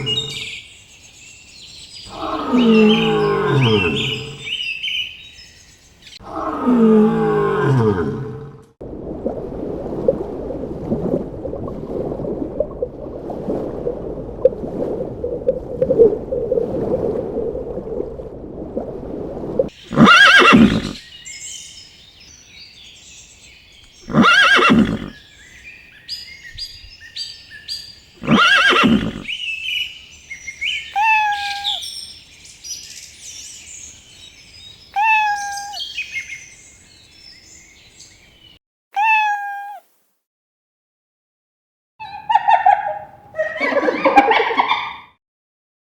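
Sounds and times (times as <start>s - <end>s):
horse whinnying: 0.0s - 0.5s, 2.1s - 4.5s, 19.9s - 21.0s, 24.1s - 25.2s, 28.2s - 29.3s
birds chirping: 0.0s - 6.4s, 19.7s - 38.6s, 42.0s - 45.0s
crackling rustling noise: 8.9s - 19.7s.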